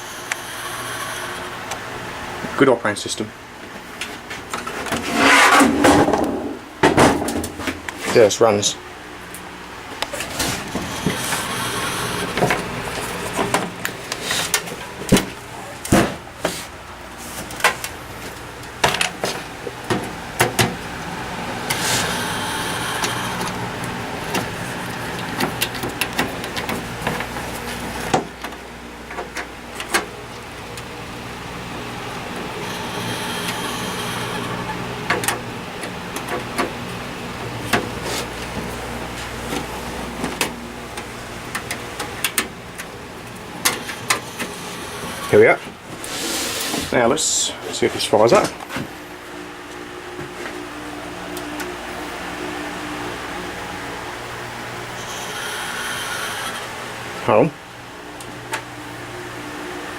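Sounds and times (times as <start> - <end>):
computer humming: 0.0 - 4.0, 5.4 - 46.2, 46.9 - 59.9
hiss: 21.6 - 23.4, 46.0 - 46.9.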